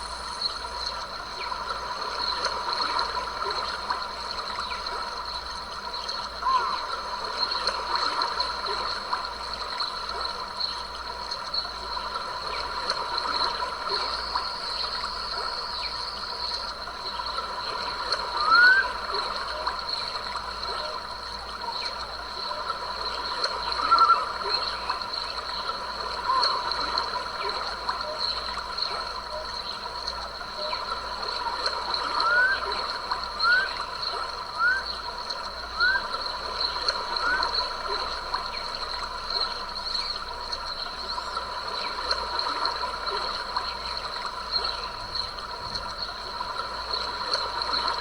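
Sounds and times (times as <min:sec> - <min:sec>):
insects chorus: 0:00.0 - 0:48.0
bird calls: 0:18.0 - 0:19.8, 0:23.6 - 0:29.9, 0:30.5 - 0:45.0.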